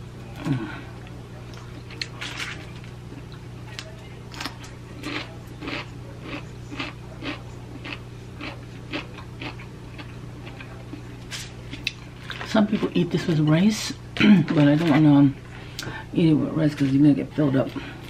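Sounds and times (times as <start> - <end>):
steady low hum: 0.0 - 18.0
person chewing crunchy food: 4.3 - 11.1.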